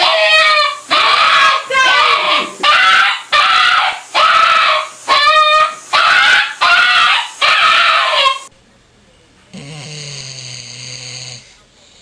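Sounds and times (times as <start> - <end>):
dog yowling: 0.0 - 8.5.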